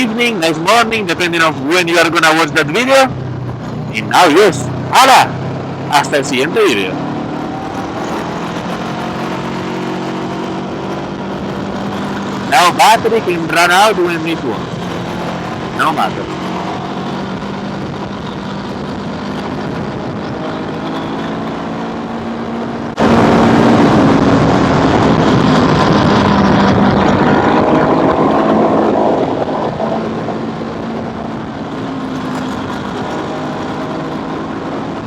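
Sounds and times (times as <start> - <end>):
wind rushing over microphone: 0.0 - 35.0.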